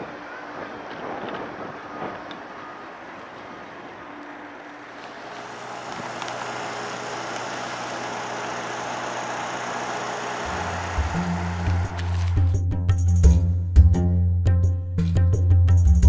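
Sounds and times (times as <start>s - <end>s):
road noise from passing vehicles: 0.0s - 12.6s.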